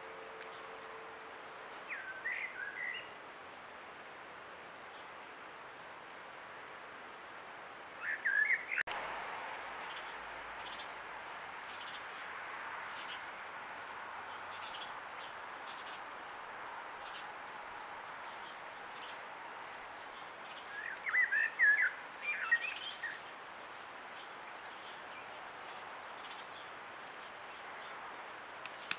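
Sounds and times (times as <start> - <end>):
small bird chirping: 14.3 - 16.1
click: 28.6 - 28.9.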